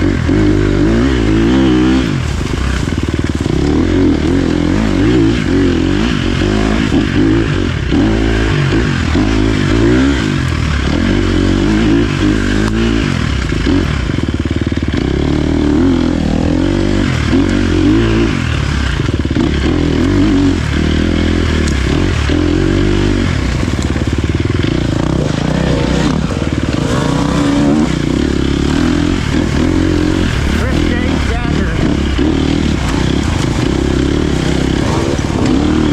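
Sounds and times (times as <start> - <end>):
dirt bike engine revving: 0.0 - 35.9.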